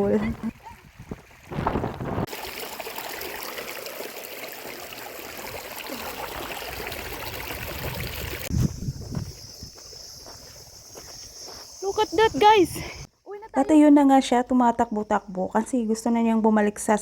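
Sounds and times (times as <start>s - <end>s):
shallow stream trickling: 0.0s - 10.8s.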